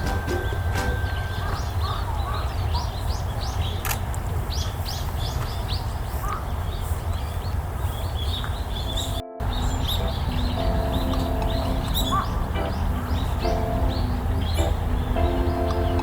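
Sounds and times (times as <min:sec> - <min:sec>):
small birds chirping: 0:00.0 - 0:16.0
steady low rumble: 0:08.9 - 0:16.0.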